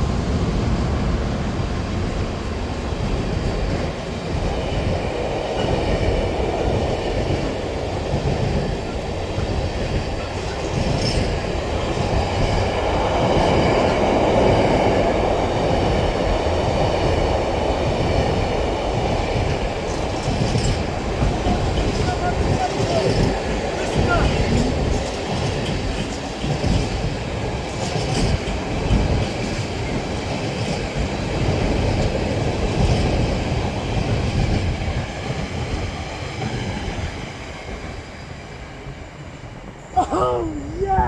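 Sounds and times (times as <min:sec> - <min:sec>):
train wheels clattering over rails: 0:00.0 - 0:39.8.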